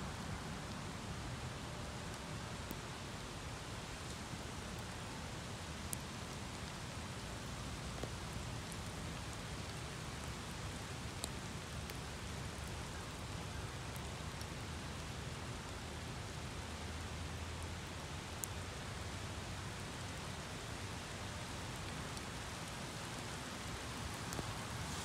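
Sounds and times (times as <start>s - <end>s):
steady rain: 0.0s - 25.0s
raindrop tick: 5.6s - 15.1s, 21.8s - 25.0s.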